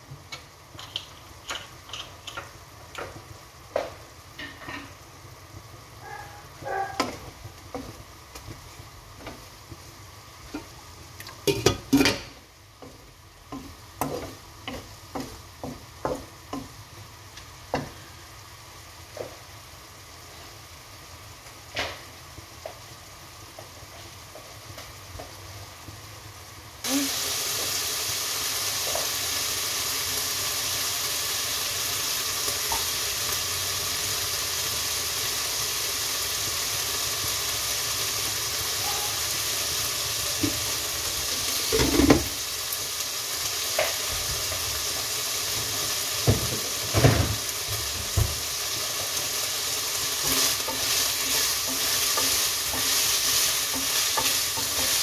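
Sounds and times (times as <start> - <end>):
food sizzling in hot oil: 0.0 - 55.0
wooden spatula scraping a pan: 50.0 - 55.0.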